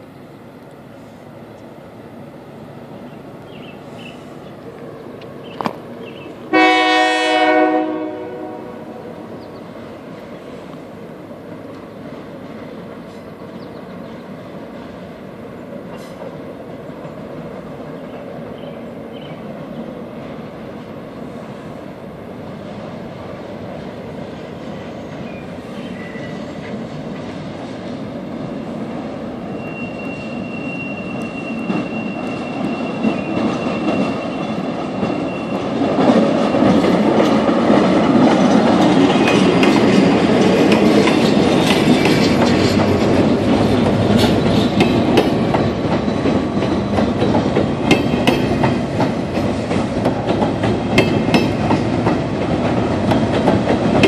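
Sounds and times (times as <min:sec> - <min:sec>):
freight train rumbling: 0:00.0 - 0:54.0
wheels clicking over rail joints: 0:31.1 - 0:54.0.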